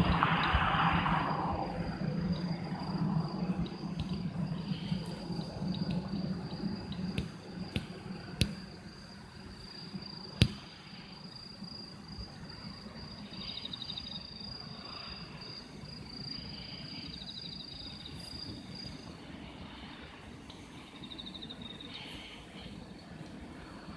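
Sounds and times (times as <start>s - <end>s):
low rumble: 0.0s - 8.4s
insects trilling: 0.0s - 23.9s.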